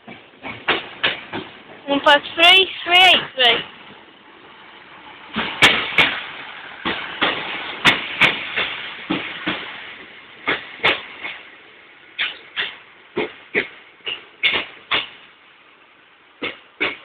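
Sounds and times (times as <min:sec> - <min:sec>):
train wheels clacking over rail joints: 0:00.0 - 0:15.8, 0:16.4 - 0:17.0
low train rumble: 0:00.0 - 0:17.0.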